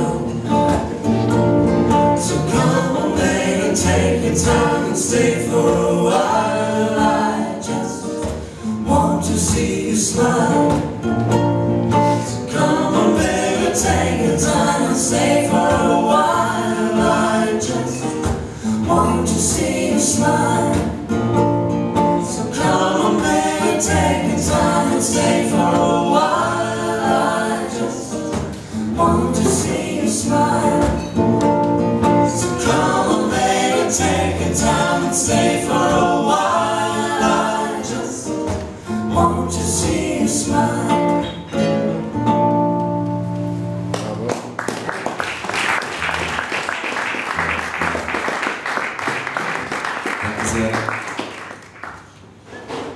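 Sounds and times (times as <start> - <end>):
voices singing in harmony: 0.0 - 41.5
strummed acoustic guitars: 0.0 - 44.6, 45.7 - 51.0
ukulele: 0.0 - 44.8.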